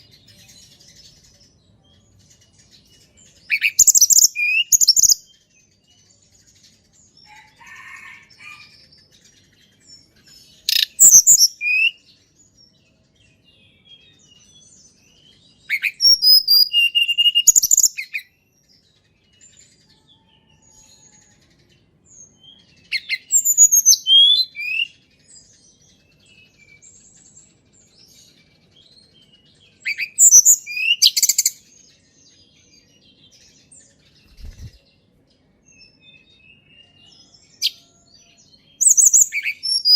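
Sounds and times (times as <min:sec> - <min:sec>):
songbird chirping and whistling: 0:00.0 - 0:05.8, 0:10.0 - 0:12.1, 0:13.6 - 0:18.6, 0:19.3 - 0:27.4, 0:28.2 - 0:31.8, 0:35.8 - 0:39.9.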